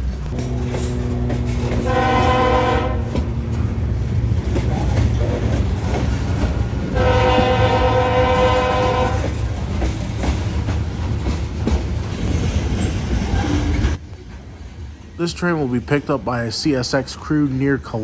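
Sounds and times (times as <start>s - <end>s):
passing train rumble: 0.0s - 18.0s
locomotive air horn blasts: 0.4s - 3.4s, 6.9s - 9.4s.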